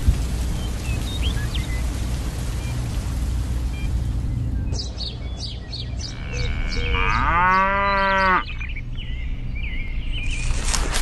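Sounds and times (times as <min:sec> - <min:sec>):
birds chirping: 0:00.4 - 0:11.0
cow mooing: 0:06.1 - 0:08.6.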